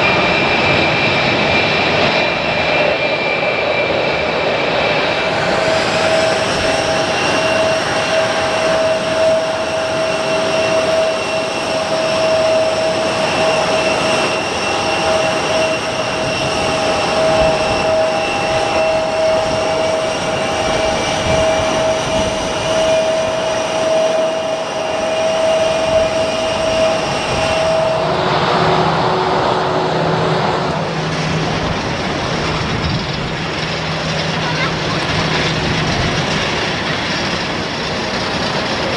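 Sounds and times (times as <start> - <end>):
jet engines whining: 0.0 - 38.9
low hum: 25.5 - 38.9.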